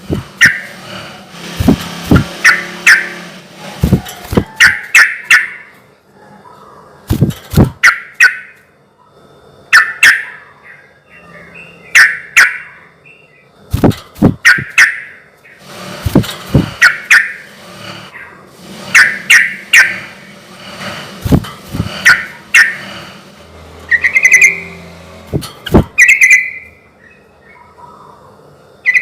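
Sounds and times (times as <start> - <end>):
bird chattering song: 9.7 - 13.5, 23.8 - 24.8, 25.6 - 28.2.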